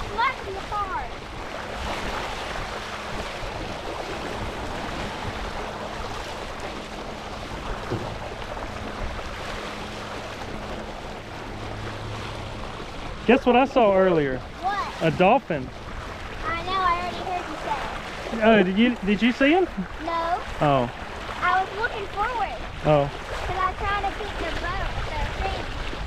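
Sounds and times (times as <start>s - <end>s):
wind on microphone: 0.0s - 13.6s, 14.4s - 26.0s
water rushing and splashing: 0.0s - 26.0s.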